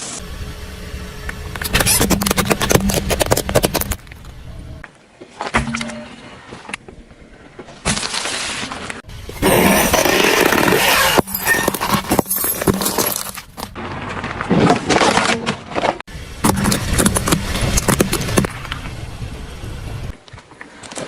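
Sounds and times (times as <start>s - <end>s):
low steady hum: 0.1s - 4.8s
tyres crushing crunchy objects: 1.6s - 4.4s, 7.8s - 18.7s.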